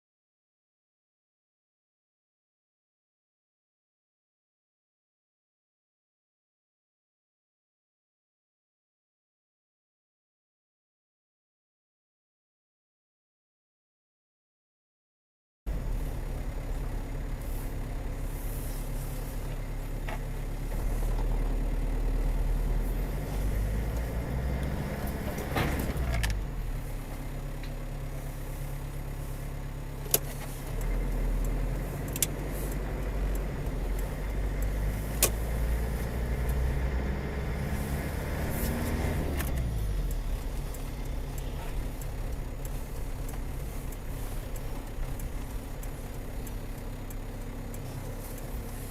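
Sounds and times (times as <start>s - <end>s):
car engine and road rumble: 15.7s - 48.9s.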